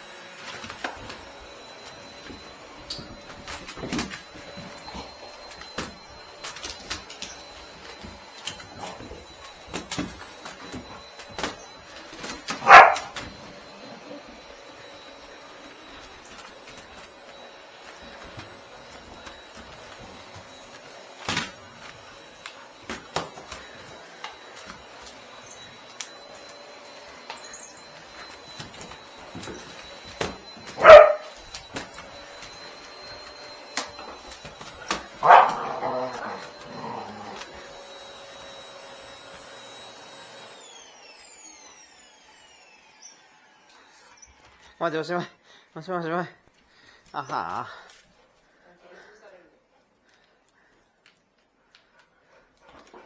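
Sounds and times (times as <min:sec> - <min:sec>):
dog barking: 0:12.6 - 0:13.2, 0:30.8 - 0:31.3, 0:35.2 - 0:37.2.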